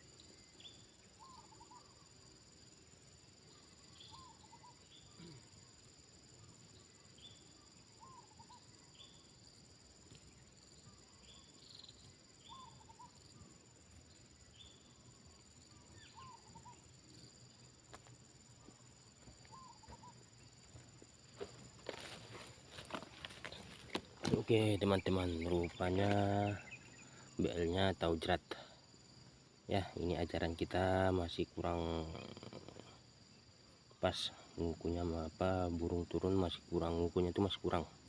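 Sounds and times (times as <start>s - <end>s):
high insect drone: 0.0s - 38.0s
faint dove cooing: 15.7s - 16.9s, 32.1s - 33.0s.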